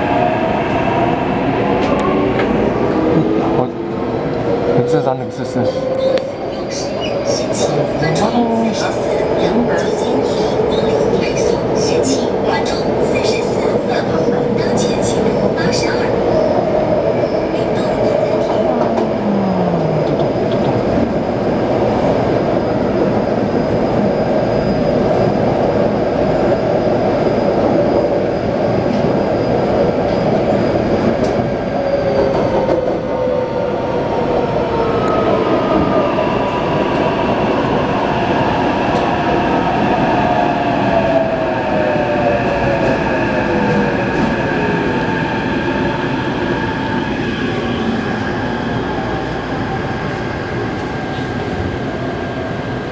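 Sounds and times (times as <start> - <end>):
train wheels rumbling on rails: 0.0 - 52.9.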